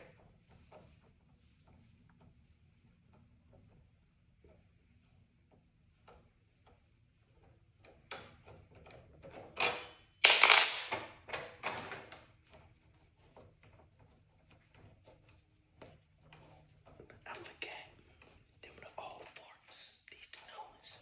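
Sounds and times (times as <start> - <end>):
metal parts clinking and clattering: 9.6 - 11.1.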